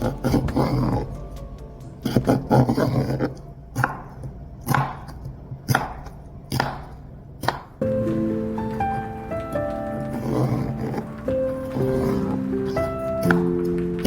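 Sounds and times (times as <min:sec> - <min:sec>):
soft music with held notes: 0:00.0 - 0:03.1, 0:07.8 - 0:14.0
knife chopping on cutting board: 0:03.8 - 0:07.7.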